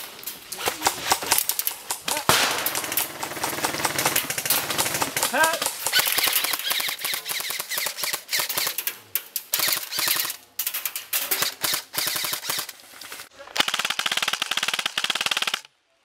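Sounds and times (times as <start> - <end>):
airsoft guns firing rapidly: 0.6 - 8.8, 9.5 - 10.4, 11.4 - 12.7, 13.6 - 15.7.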